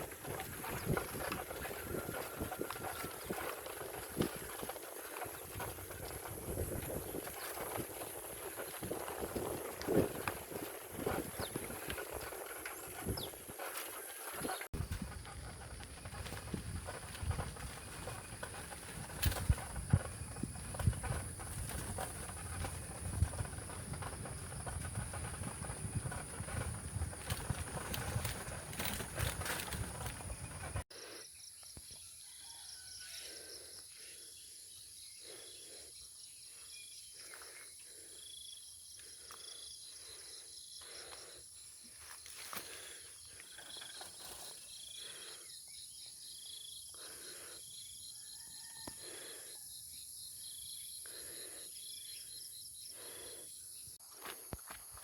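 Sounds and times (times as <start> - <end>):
fast pulsing insect chirr: 0.0 - 30.8.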